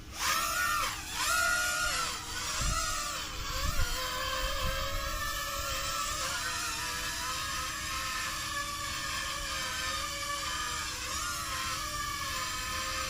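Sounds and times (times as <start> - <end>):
toy drone motors whining: 0.0 - 13.0
wind buffeting microphone: 1.7 - 6.5.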